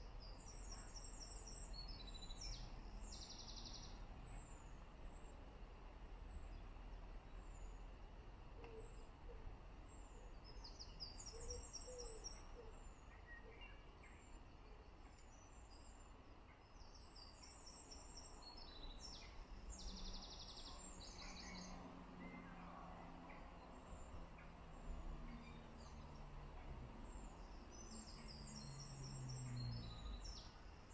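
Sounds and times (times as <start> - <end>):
songbirds singing: 0.0 - 30.9.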